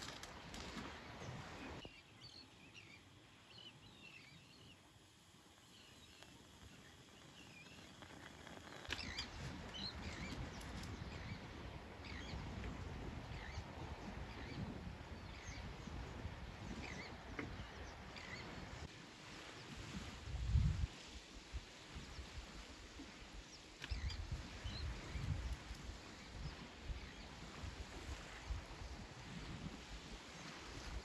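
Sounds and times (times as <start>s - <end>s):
small birds chirping: 1.8s - 12.4s.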